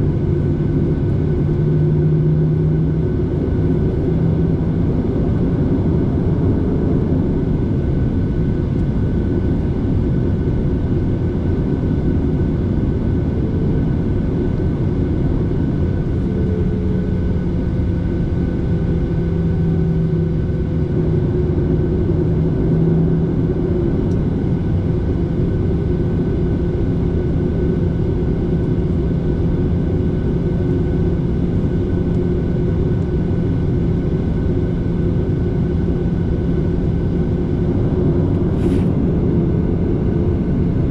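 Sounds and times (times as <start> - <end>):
constant cabin hum: 0.0 - 40.9
jet engine and airflow drone: 0.0 - 40.9.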